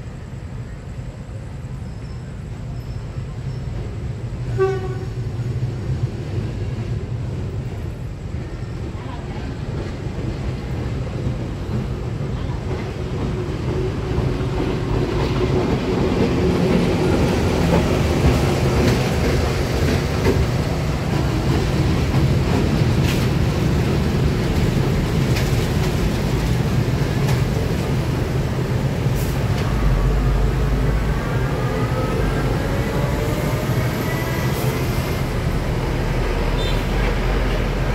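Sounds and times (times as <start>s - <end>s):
passenger train rumbling: 0.0s - 37.9s
heavy truck rumbling: 14.5s - 37.9s.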